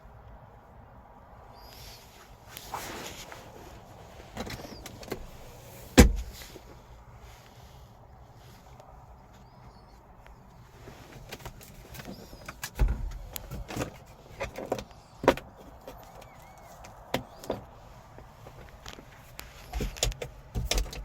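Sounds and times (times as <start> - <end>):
car door and trim clicking: 5.9 - 6.4
heavy thump: 6.0 - 6.4.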